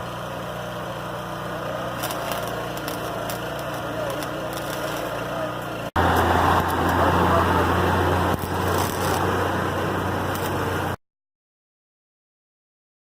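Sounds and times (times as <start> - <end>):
generator engine running: 0.0 - 11.0
faint crackling: 2.0 - 7.0, 8.3 - 9.4.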